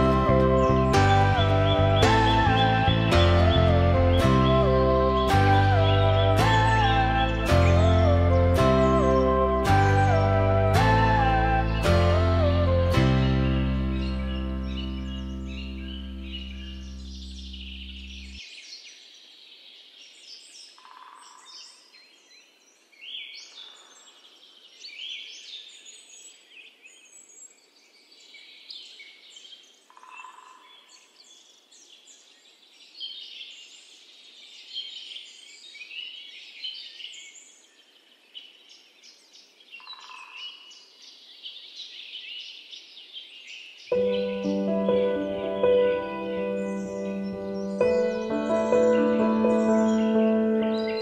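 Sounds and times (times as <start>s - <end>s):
lower bird call: 0.0s - 18.4s
small birds chirping and trilling: 0.0s - 51.0s.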